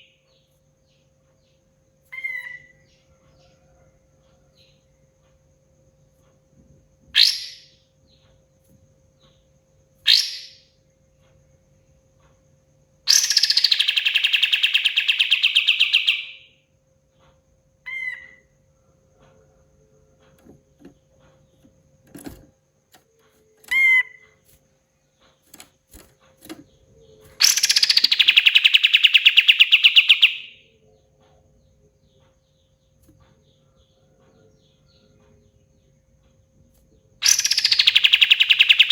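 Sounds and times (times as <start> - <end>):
faint steady hum: 0.0 - 38.9
bird singing rattling notes: 13.1 - 16.5, 20.2 - 30.6, 37.2 - 38.9.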